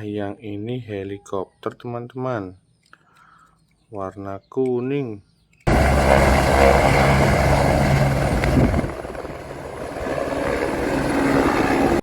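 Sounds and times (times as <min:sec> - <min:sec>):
helicopter rotor and engine: 0:05.7 - 0:12.0.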